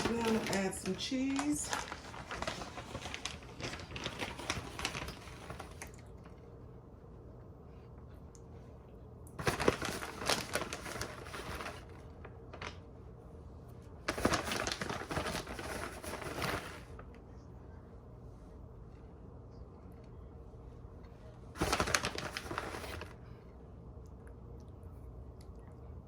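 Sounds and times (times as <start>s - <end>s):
plastic bag crinkling: 0.0s - 6.4s, 9.4s - 12.8s, 14.1s - 17.1s, 21.6s - 23.2s.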